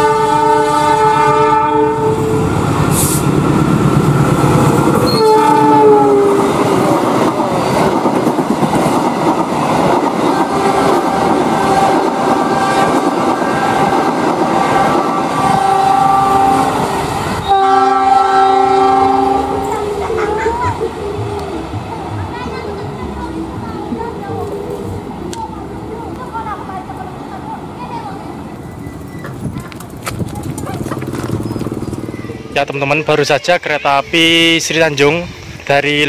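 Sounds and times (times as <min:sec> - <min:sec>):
locomotive horn: 0:00.0 - 0:02.4, 0:05.1 - 0:06.6, 0:10.2 - 0:21.6
train coaches rolling roar: 0:00.0 - 0:36.0
wheel clatter over rail joints: 0:28.6 - 0:32.5.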